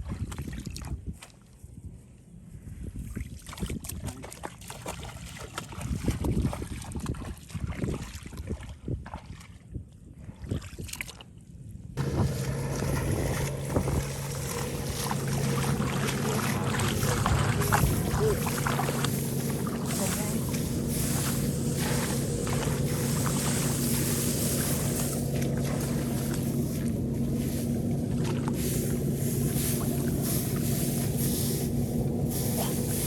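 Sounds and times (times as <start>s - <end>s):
small engine humming: 12.0s - 33.0s
splashing noise: 12.0s - 33.0s.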